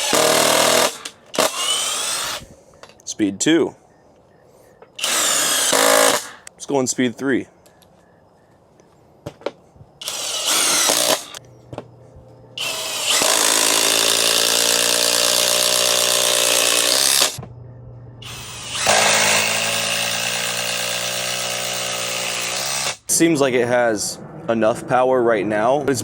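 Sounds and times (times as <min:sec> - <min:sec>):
impact driver buzzing rattle: 0:00.0 - 0:02.5, 0:05.0 - 0:06.5, 0:10.0 - 0:11.4, 0:12.6 - 0:17.4, 0:18.2 - 0:23.0.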